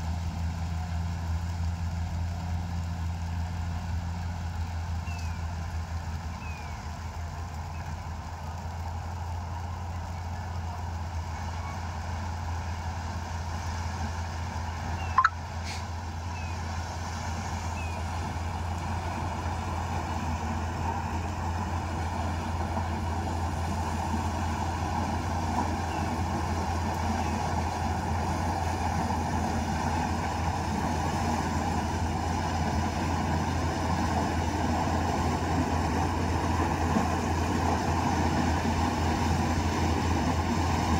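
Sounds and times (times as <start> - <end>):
combine harvester engine drone: 0.0 - 40.9.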